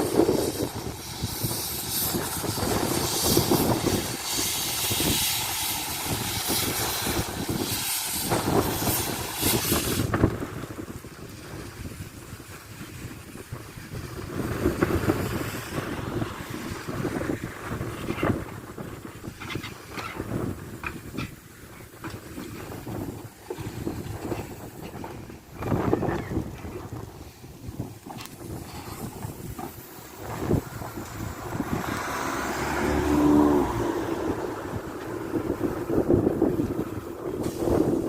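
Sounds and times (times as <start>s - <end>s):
train rumbling: 0.0s - 10.7s, 22.0s - 38.0s
loud hiss: 0.0s - 38.0s.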